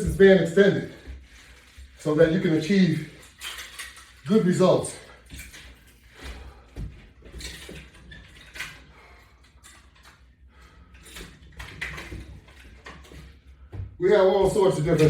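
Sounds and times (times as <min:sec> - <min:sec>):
metal clips and chains clinking: 0:01.6 - 0:06.1.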